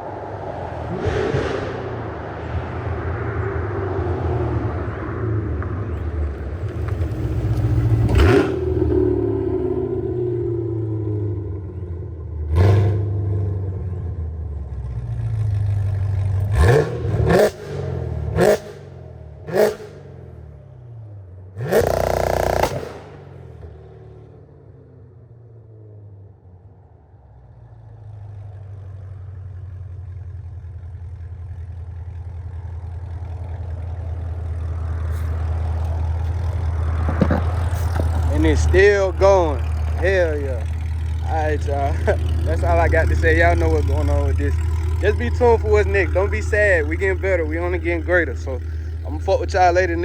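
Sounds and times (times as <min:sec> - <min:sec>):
exhaust blast: 0:00.0 - 0:11.8, 0:16.4 - 0:20.4, 0:21.6 - 0:23.8, 0:34.4 - 0:50.0
car engine revving: 0:00.0 - 0:50.0
low engine drone: 0:00.0 - 0:50.0.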